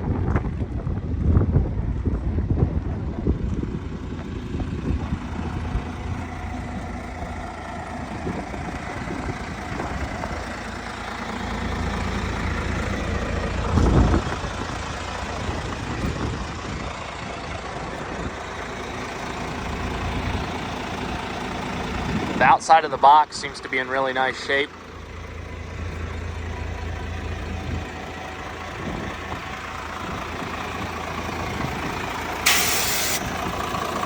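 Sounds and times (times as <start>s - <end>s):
truck engine idling: 0.0s - 34.0s.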